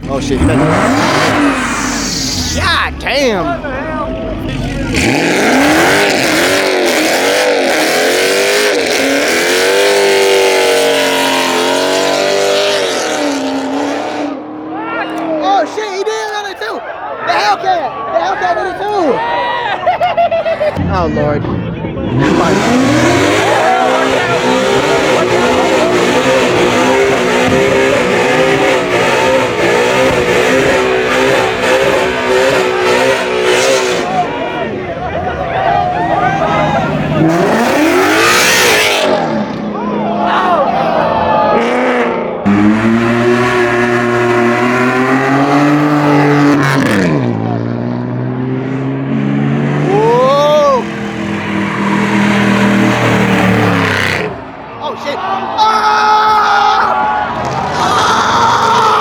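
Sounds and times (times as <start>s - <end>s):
car engine revving hard: 0.0s - 2.6s, 4.4s - 15.3s, 22.0s - 34.8s, 36.0s - 39.7s, 41.5s - 54.6s
spinning tyres hissing: 0.8s - 2.6s.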